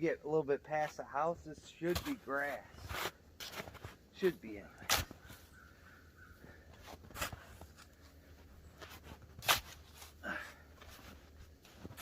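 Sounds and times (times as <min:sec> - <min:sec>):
snow shovel scraping snow: 0:01.9 - 0:04.0.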